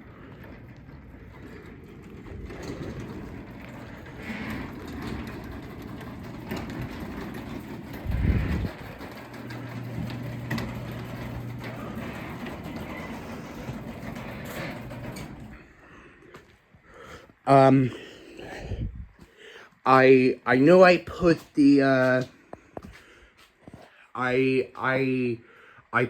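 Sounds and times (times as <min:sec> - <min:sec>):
garage door opener running: 0:00.0 - 0:16.2.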